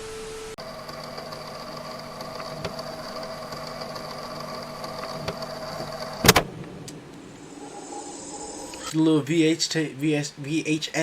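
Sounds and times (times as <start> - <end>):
tape deck whirring: 0.6 - 7.3
faint clicks: 0.7 - 8.9.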